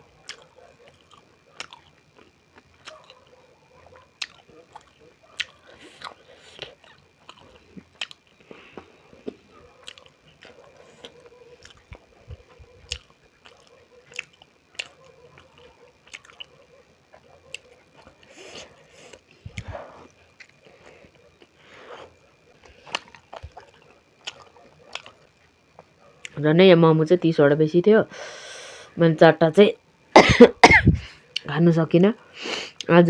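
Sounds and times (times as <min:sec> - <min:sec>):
close chewing and biting: 0:00.1 - 0:26.4.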